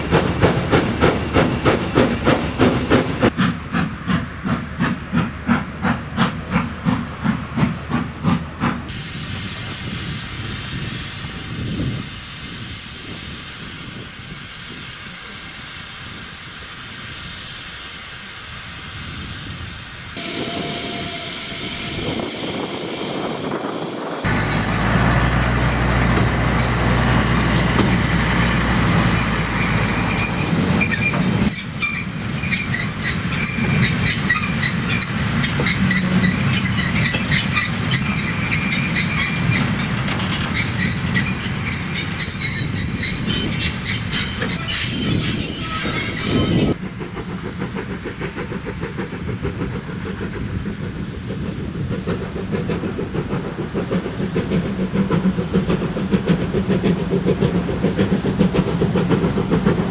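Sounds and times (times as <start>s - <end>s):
train rumble and clatter: 0.0s - 59.9s
train wheels squealing: 8.9s - 50.9s.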